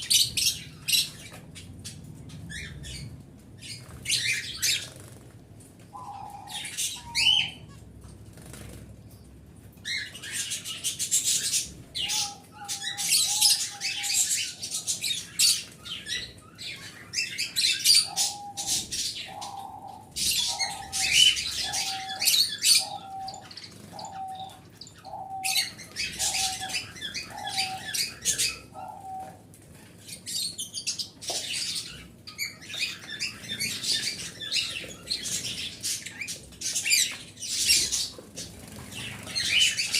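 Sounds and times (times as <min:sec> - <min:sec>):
small birds chirping and chattering: 0:00.0 - 0:39.9
repeated lower bird calls: 0:05.9 - 0:07.8, 0:09.9 - 0:29.4.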